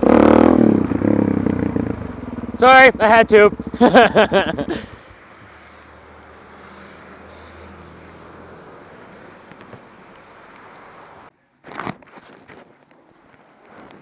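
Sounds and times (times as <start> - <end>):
motorcycle engine idling: 0.6 - 5.2.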